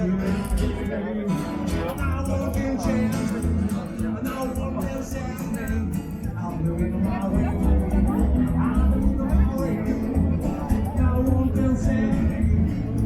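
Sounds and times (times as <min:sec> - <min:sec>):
person singing: 0:01.7 - 0:13.0.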